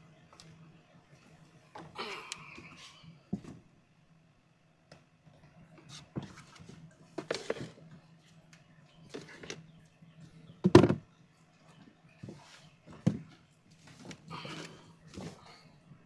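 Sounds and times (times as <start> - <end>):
irregular knocks and thuds: 10.6 - 11.0.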